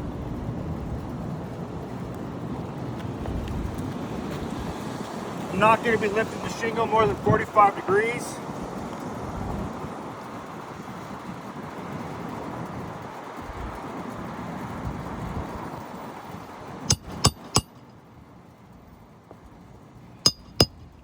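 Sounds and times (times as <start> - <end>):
wind: 0.0 - 21.0
passing traffic: 0.1 - 17.8
sharp metallic clinks: 16.9 - 17.8, 20.3 - 21.0.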